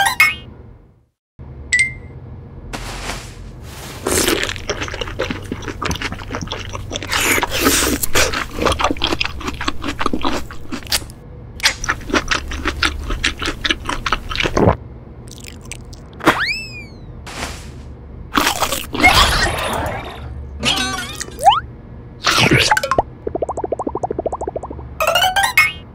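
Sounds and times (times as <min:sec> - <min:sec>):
fruit being bitten and chewed: 0:03.8 - 0:16.4, 0:18.4 - 0:19.2
squeaky sound effect: 0:16.2 - 0:17.2, 0:25.0 - 0:25.9.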